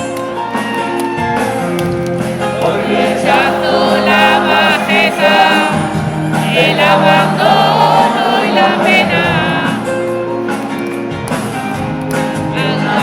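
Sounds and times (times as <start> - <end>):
live pop-rock band with singing: 0.0 - 13.0.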